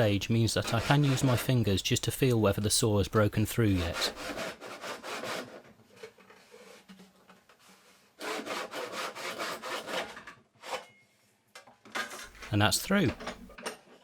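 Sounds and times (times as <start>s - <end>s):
hand saw cutting wood: 0.0s - 2.1s, 3.4s - 5.8s, 8.2s - 10.8s.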